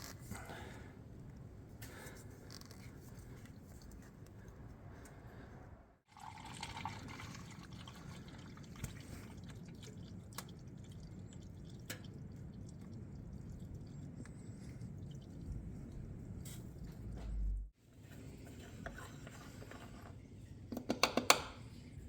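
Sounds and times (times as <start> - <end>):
oil dripping into drain pan: 6.1 - 16.1.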